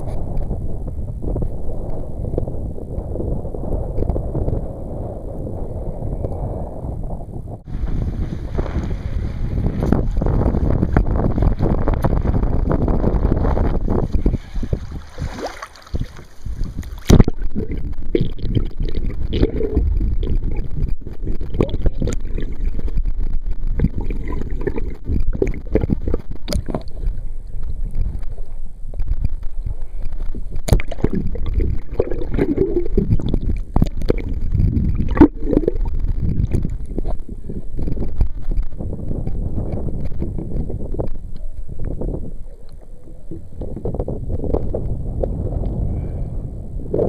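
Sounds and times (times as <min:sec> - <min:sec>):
wind buffeting microphone: 0:00.0 - 0:47.0
water sloshing against kayak: 0:07.7 - 0:38.8.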